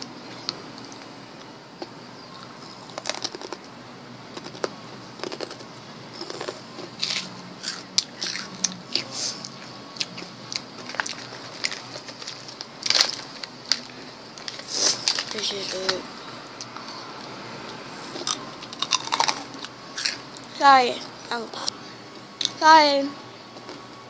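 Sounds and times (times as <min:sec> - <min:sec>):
chewing crunchy snack: 0:02.4 - 0:03.6, 0:04.3 - 0:15.4, 0:18.1 - 0:20.2.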